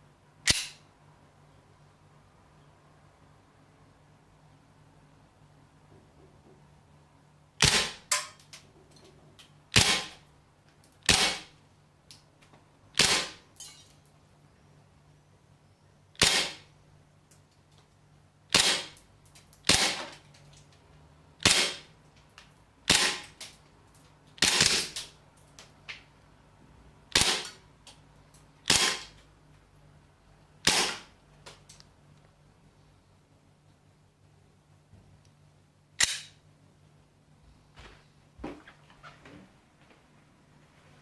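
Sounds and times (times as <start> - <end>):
airsoft pistol shots: 7.6 - 8.3, 9.8 - 10.2, 11.1 - 11.5, 13.0 - 13.4, 16.2 - 16.6, 18.5 - 19.0, 19.7 - 20.0, 21.4 - 21.9, 22.9 - 23.3, 24.4 - 25.0, 27.1 - 27.6, 28.7 - 29.1, 30.6 - 31.1.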